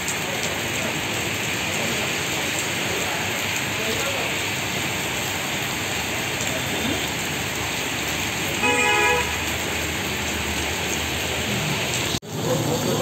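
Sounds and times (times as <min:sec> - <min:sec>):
heavy rain on street: 0:00.0 - 0:13.0
vehicle horn honking: 0:08.6 - 0:09.5.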